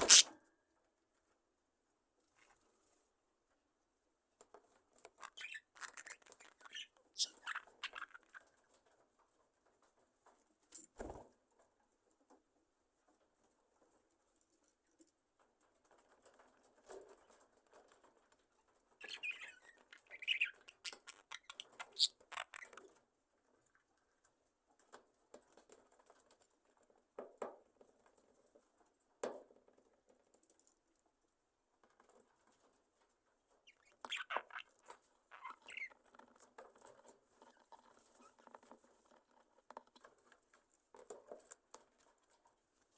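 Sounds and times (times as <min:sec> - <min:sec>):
budgerigars chirping: 0:00.0 - 0:00.3, 0:05.2 - 0:08.4, 0:33.7 - 0:35.9.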